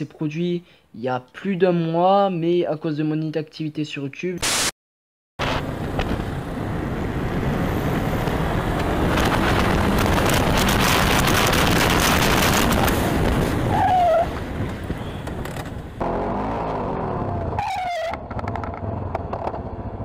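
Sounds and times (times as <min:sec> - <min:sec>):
wind rush: 0:05.4 - 0:16.0
road noise: 0:05.4 - 0:20.0
motorcycle engine: 0:14.6 - 0:20.0.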